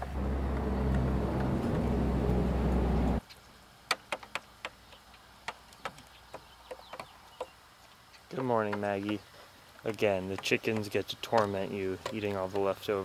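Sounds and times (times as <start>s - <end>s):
loud steady low hum: 0.0s - 3.2s
sharp ticks and taps: 3.9s - 9.2s, 9.9s - 12.8s.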